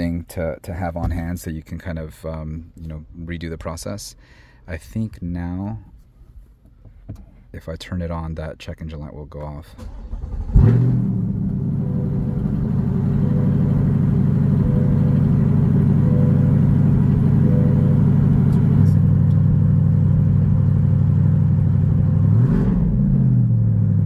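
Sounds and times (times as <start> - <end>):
car engine idling: 9.8 - 24.0.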